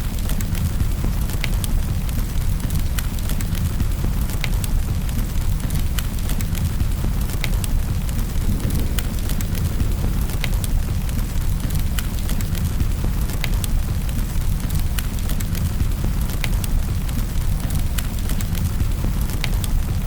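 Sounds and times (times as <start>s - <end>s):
wood fire crackling and popping: 0.0s - 20.0s
low rumble: 7.6s - 11.9s.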